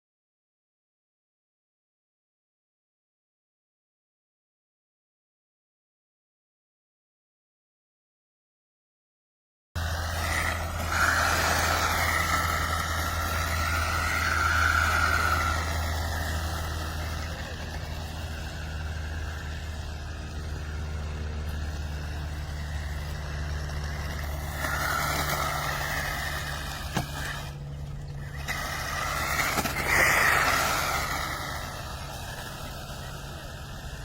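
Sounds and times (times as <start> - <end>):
engine idling: 9.8 - 34.0
vehicles passing by: 9.8 - 34.0.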